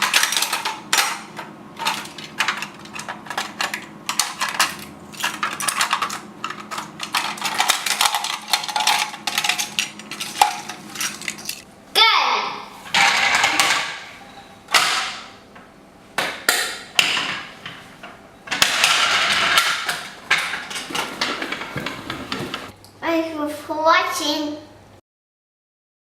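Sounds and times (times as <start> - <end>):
toy pieces clattering: 0.0 - 11.7.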